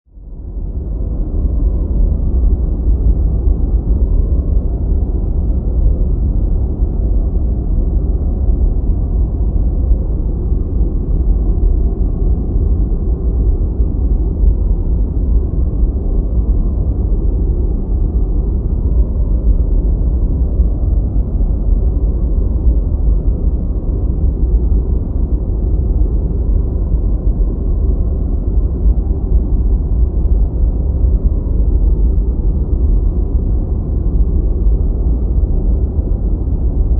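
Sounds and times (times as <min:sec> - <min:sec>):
deep low white noise: 0:00.0 - 0:36.9.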